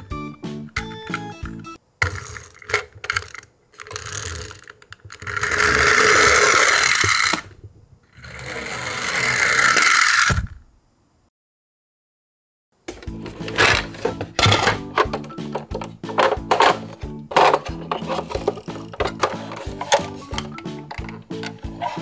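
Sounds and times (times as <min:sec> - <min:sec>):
toy gear motor clicking: 0:02.0 - 0:07.5, 0:08.2 - 0:10.5
toy gears whirring: 0:02.0 - 0:07.5, 0:08.1 - 0:10.5, 0:16.2 - 0:22.0.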